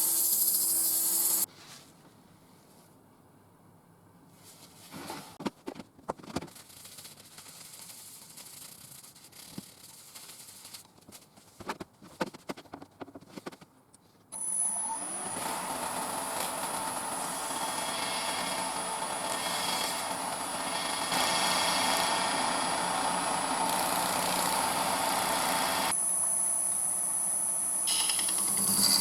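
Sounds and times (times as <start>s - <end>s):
wood lathe running with whine: 0.0s - 1.5s, 14.4s - 29.0s.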